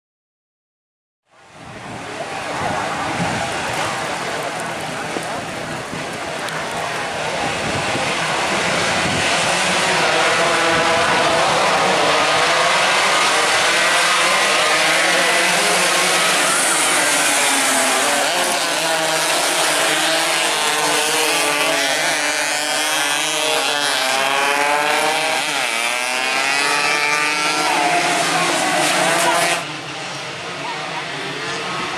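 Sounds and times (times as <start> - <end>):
racing motorcycles at high revs: 2.2 - 29.8.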